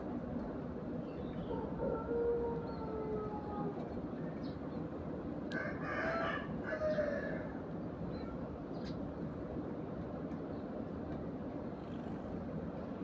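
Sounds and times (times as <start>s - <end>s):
rooster crowing: 1.5s - 3.8s, 5.5s - 7.6s.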